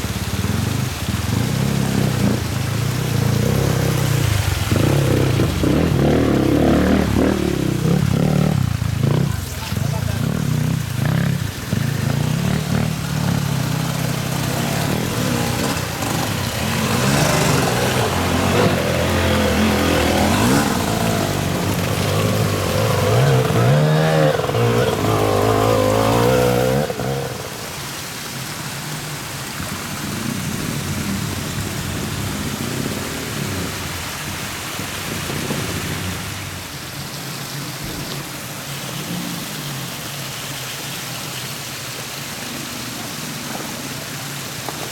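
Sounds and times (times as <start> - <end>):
vehicle engine revving: 0.0 - 28.0
heavy rain hiss: 0.0 - 44.9.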